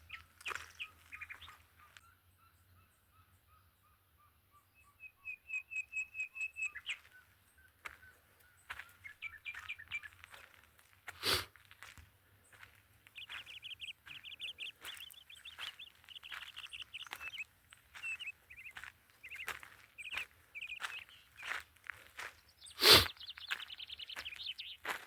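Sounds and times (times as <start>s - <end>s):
footsteps on dry ground: 0.0s - 1.9s, 6.9s - 25.0s
small birds chirping: 0.0s - 25.0s.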